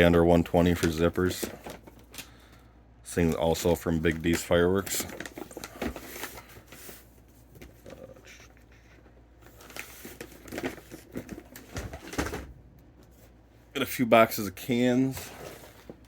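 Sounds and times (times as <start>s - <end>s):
packaging crinkling and knocking: 3.3s - 8.3s, 9.0s - 12.6s.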